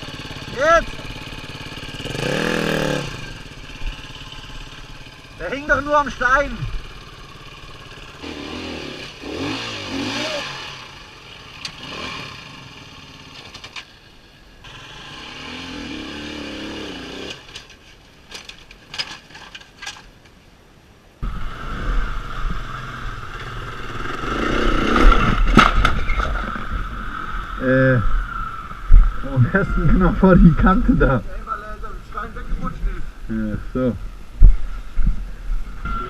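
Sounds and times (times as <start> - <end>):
dirt bike engine revving: 0.0 - 13.4, 14.6 - 17.6, 21.2 - 31.1.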